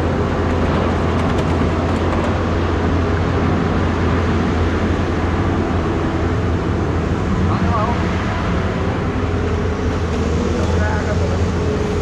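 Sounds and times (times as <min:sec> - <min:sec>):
pickup truck engine running: 0:00.0 - 0:03.5.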